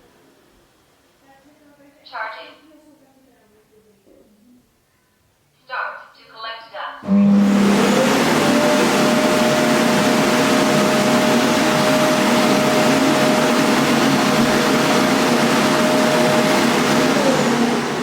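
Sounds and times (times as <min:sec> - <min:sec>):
vacuum suction motor whining: 0:07.0 - 0:18.0.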